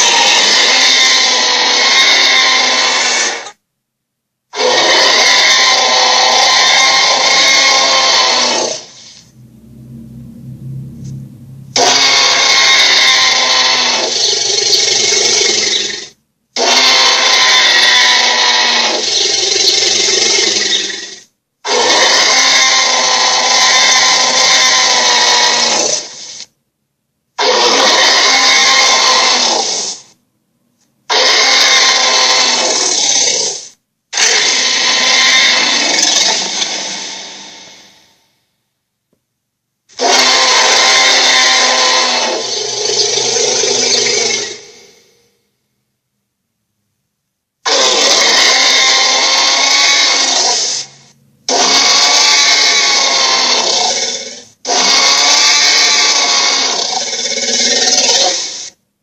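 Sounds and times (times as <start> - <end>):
toy harsh rasping sound effect: 0.0 - 3.6, 4.5 - 9.3, 11.7 - 26.5, 27.4 - 30.2, 31.1 - 38.1, 39.9 - 45.1, 47.6 - 58.8
toy speaker harsh sound effect: 11.7 - 14.2.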